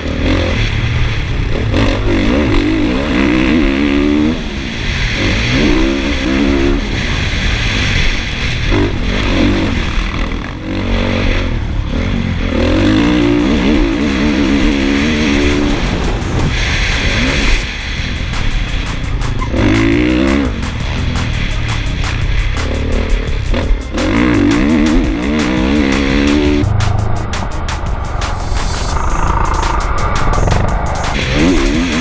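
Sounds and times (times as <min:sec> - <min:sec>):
motocross bike engine revving: 0:10.6 - 0:27.5, 0:28.6 - 0:32.0.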